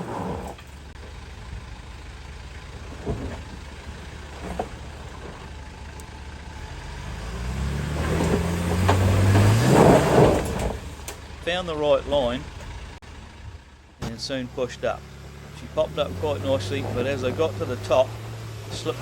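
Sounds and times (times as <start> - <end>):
truck engine running and revving: 0.0 - 19.0.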